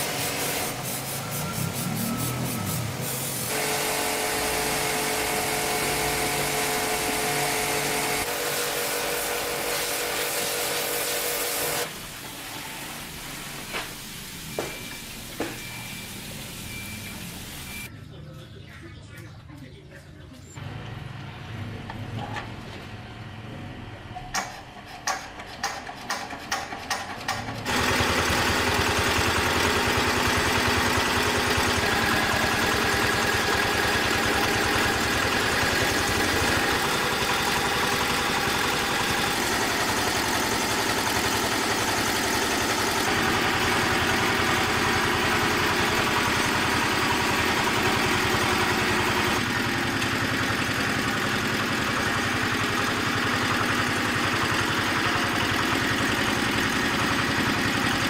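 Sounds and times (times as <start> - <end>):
diesel engine cranking and running: 20.6 - 58.0.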